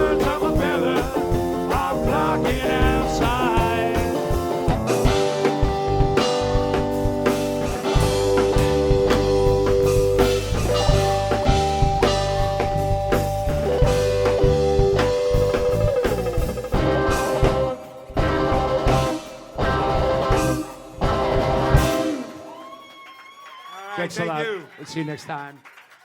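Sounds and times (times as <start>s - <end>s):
rock band playing: 0.0s - 23.1s.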